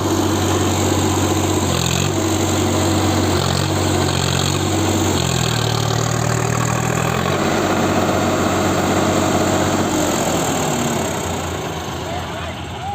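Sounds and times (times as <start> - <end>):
tractor diesel engine running: 0.0 - 12.9.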